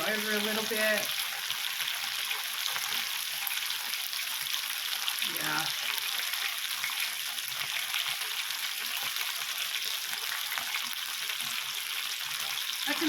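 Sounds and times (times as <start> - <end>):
kebabs sizzling on a grill: 0.0 - 13.0.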